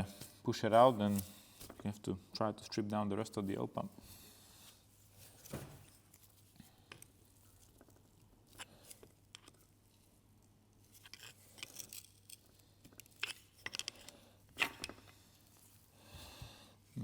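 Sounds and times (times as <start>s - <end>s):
small metal parts clicking: 10.9s - 15.2s.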